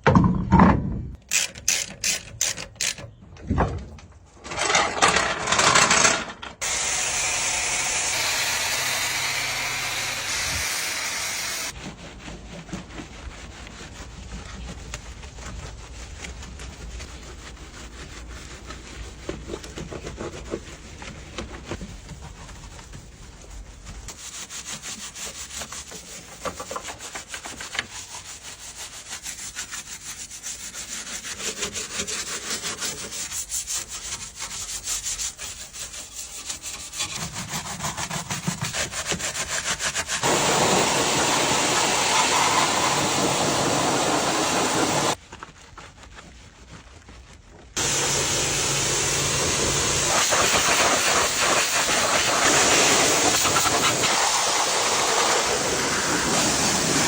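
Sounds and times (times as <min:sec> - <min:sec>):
scrubbing and rubbing: 0:11.6 - 0:57.0
spray hiss: 0:40.2 - 0:45.2, 0:47.8 - 0:57.0.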